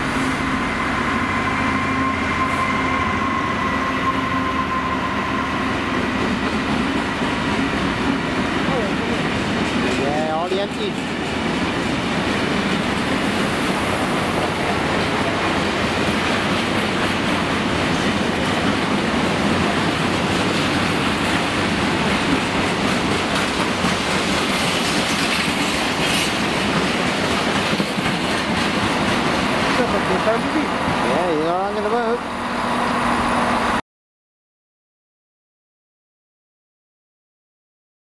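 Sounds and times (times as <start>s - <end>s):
freight wagons rumbling on rails: 4.3s - 33.8s.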